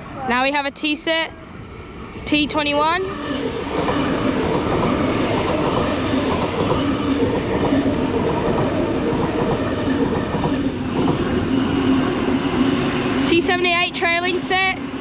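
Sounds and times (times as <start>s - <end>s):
train wheels rumbling on rails: 2.2s - 15.0s.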